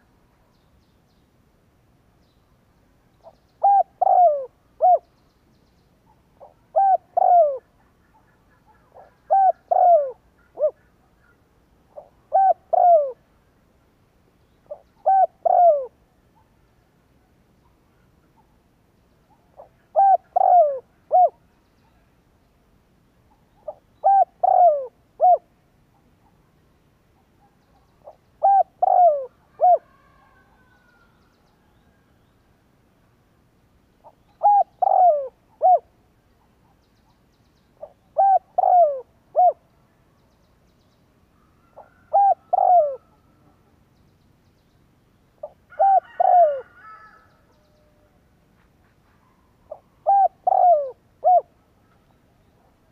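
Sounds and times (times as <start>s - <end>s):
dove cooing: 3.2s - 5.1s, 6.4s - 13.3s, 14.7s - 16.0s, 19.3s - 21.4s, 23.6s - 25.5s, 28.0s - 31.1s, 34.0s - 36.0s, 37.8s - 39.7s, 41.6s - 43.8s, 45.4s - 48.1s, 49.7s - 52.9s
faint bird chirps: 17.5s - 32.5s.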